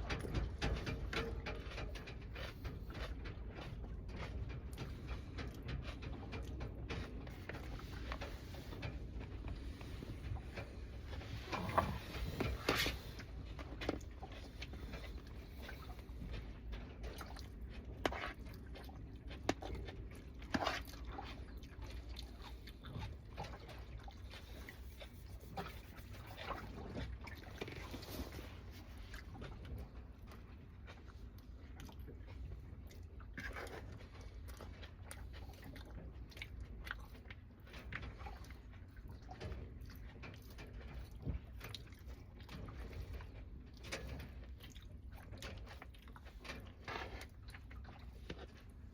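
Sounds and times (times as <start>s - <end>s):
person chewing and crunching food: 1.3s - 38.5s.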